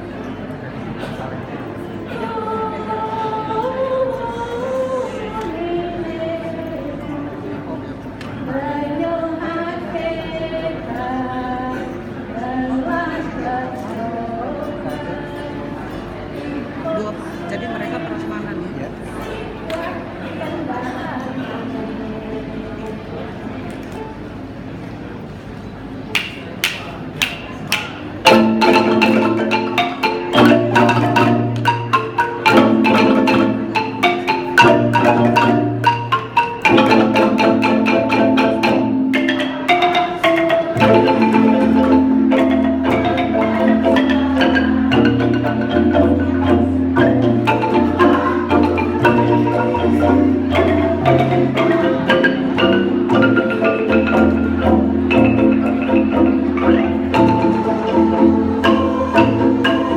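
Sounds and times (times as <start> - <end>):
wooden xylophone ensemble playing: 25.9 - 59.9
bass xylophone low notes: 28.2 - 59.9.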